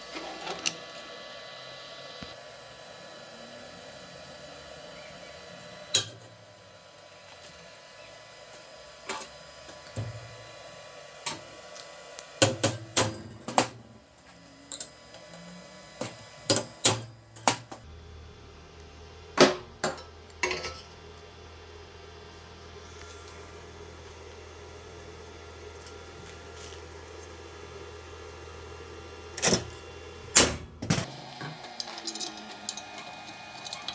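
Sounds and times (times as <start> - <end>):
steady low hum: 0.0 - 33.9
metal tools clicking and knocking: 31.0 - 33.9.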